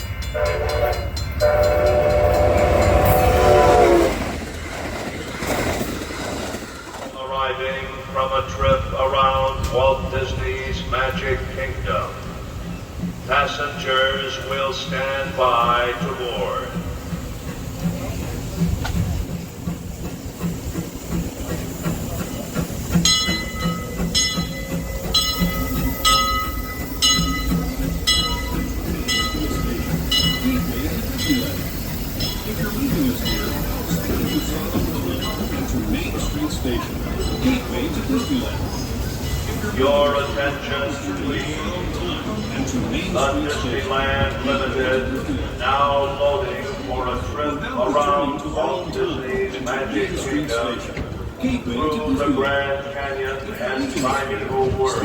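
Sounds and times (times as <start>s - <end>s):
steam locomotive whistle: 0.0s - 4.4s
locomotive bell ringing: 0.0s - 5.8s, 20.1s - 41.7s
train running rumble: 0.0s - 55.0s.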